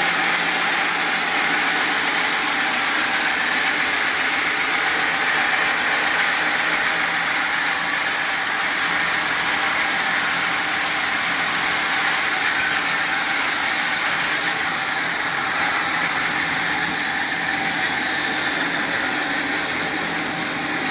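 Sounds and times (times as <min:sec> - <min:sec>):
machine humming with strong hiss: 0:00.0 - 0:20.9.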